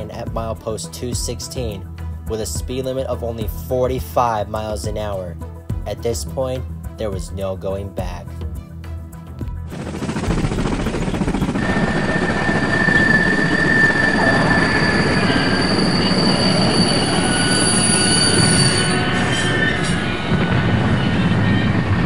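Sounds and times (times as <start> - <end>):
train rumbling: 9.7 - 22.0
train wheels squealing: 11.6 - 22.0.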